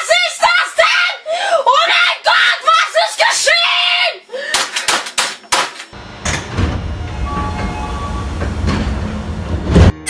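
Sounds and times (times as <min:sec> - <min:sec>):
faint steady tones: 0:06.0 - 0:09.9
low rumbling noise: 0:06.0 - 0:10.0.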